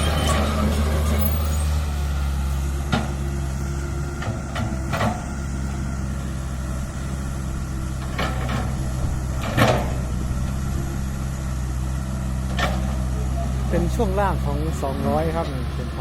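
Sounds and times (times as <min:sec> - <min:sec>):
excavator diesel engine running: 0:00.0 - 0:16.0
metal clanks and knocks: 0:04.1 - 0:05.4, 0:07.9 - 0:11.2, 0:12.4 - 0:13.2.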